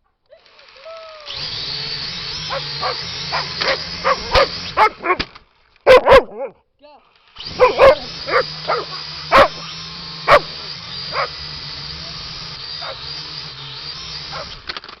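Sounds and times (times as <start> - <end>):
dog barking and yipping: 2.4 - 6.6, 7.5 - 11.5, 12.7 - 13.2, 14.2 - 14.6.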